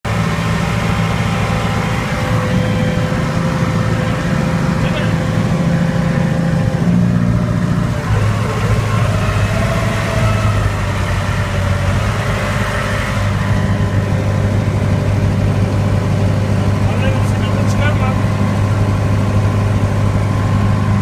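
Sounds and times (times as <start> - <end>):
tractor diesel engine idling: 0.0 - 21.0.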